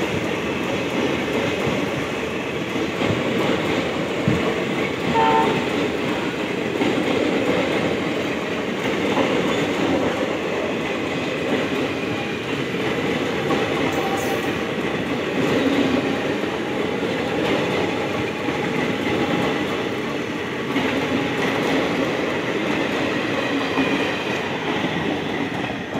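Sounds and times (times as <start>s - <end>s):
train coaches rumbling past: 0.0s - 25.9s.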